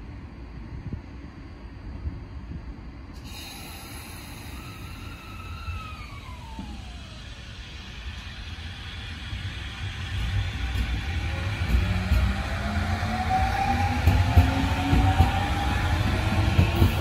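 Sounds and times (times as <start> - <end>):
low train rumble: 0.0 - 17.0
train hiss: 3.1 - 17.0
traction motor whine: 3.5 - 17.0.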